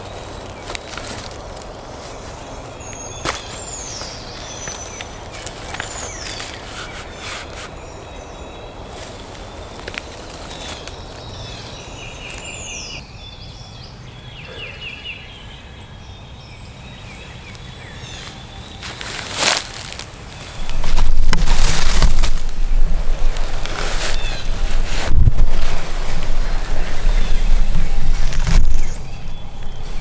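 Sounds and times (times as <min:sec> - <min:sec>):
songbirds whistling: 0:00.0 - 0:30.0
faint rustles: 0:18.1 - 0:30.0.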